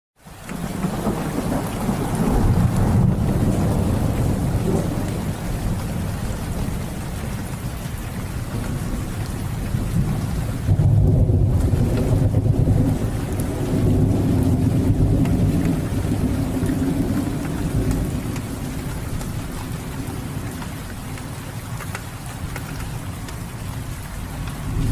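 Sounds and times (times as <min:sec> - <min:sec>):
steady rain: 0:00.2 - 0:24.9
rolling thunder: 0:00.6 - 0:07.5, 0:08.5 - 0:20.5, 0:24.1 - 0:24.9.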